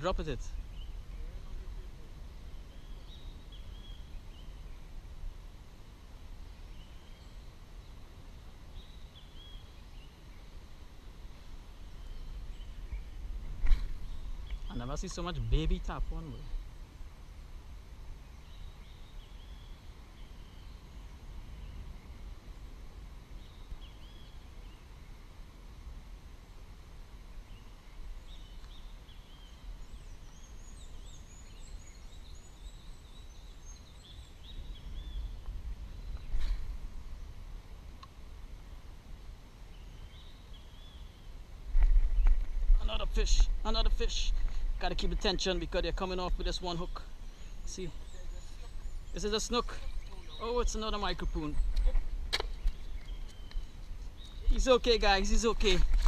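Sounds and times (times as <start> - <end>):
small birds chirping: 0.0 - 26.0, 27.1 - 56.0
faint bird calls: 46.7 - 56.0.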